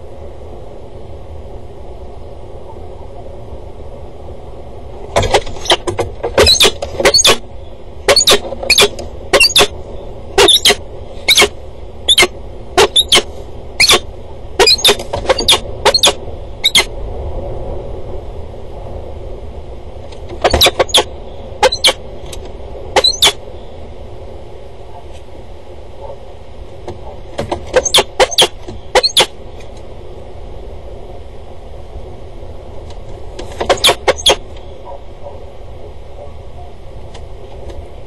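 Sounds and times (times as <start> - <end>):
outdoor background noise: 0.0 - 38.0
loud sharp bird calls: 5.3 - 16.9, 20.4 - 22.0, 23.0 - 23.8, 27.8 - 29.4, 33.7 - 34.8.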